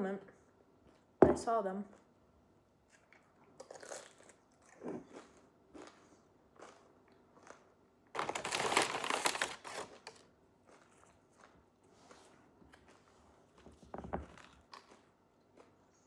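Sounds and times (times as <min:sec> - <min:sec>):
crunchy food being chewed: 0:02.8 - 0:13.6, 0:14.2 - 0:16.0.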